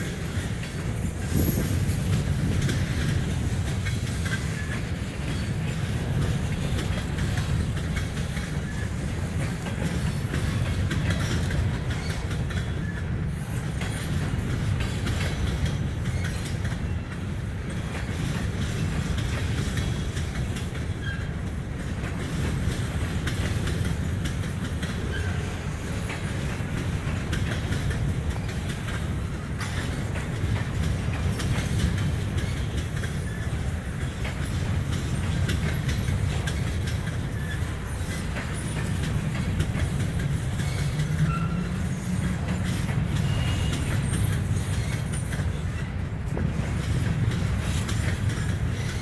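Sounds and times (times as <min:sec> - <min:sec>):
freight train rumbling: 0:00.0 - 0:49.0
wheels clicking over rail joints: 0:00.0 - 0:49.0.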